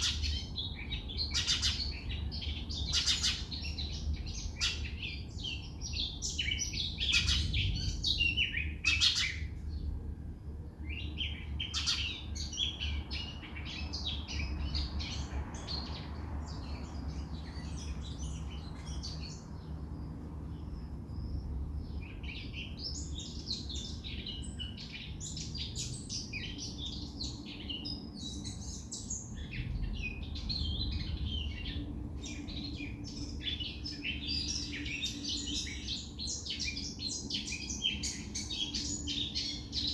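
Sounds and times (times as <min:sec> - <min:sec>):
small birds chirping: 0:00.0 - 0:39.9
steady low rumble: 0:03.6 - 0:11.8, 0:29.2 - 0:35.9.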